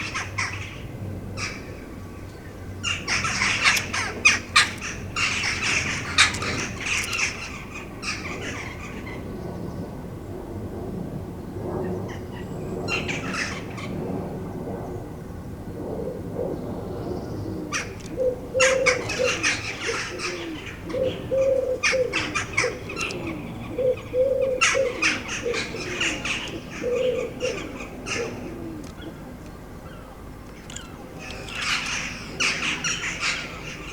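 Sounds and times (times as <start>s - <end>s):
birds chirping: 0.0s - 10.0s, 16.6s - 33.9s
wing flutters: 2.2s - 8.7s, 15.8s - 33.9s
pigeon cooing: 2.8s - 8.9s, 16.0s - 33.9s.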